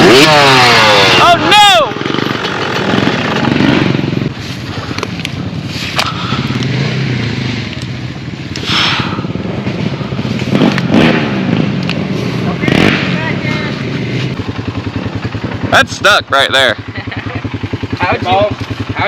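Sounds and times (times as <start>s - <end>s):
dirt bike engine running: 0.0s - 19.0s
clicks and scraping: 4.4s - 6.8s.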